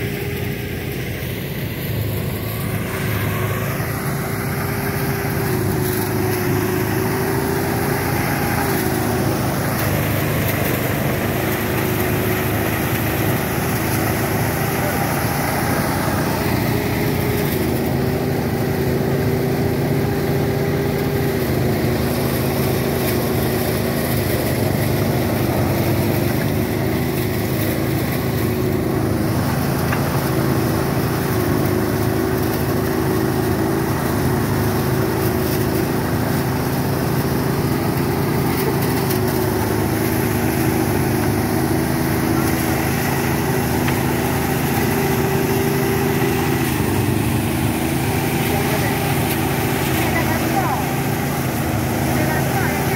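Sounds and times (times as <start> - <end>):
small engine droning: 0.0 - 52.9.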